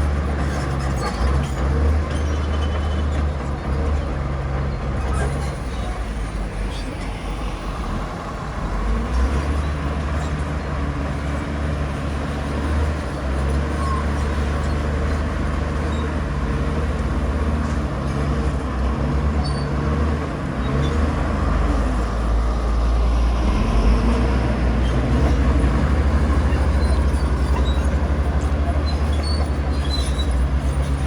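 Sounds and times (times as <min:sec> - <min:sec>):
heavy diesel engine droning: 0:00.0 - 0:31.0.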